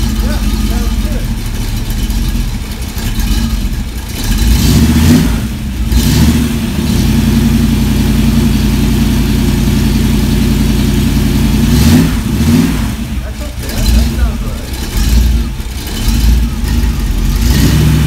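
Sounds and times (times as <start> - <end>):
engine revving through mufflers: 0.0 - 1.3, 2.6 - 18.0.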